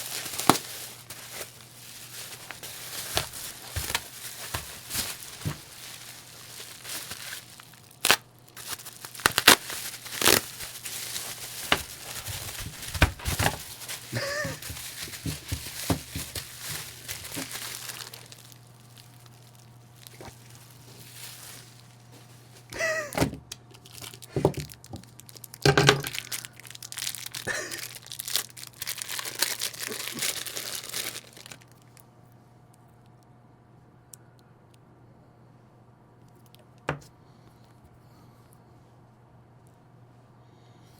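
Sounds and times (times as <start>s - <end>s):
cardboard tearing and crinkling: 0.0s - 31.8s.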